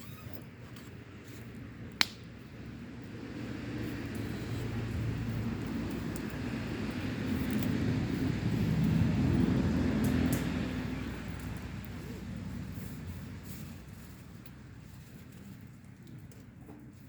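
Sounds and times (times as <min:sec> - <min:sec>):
vehicle engine passing by: 0:02.7 - 0:15.6.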